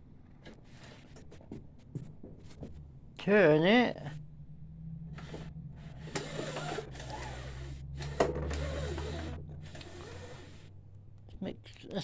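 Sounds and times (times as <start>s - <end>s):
steady low hum: 0.0s - 12.0s
scraping and handling noise: 0.3s - 3.2s.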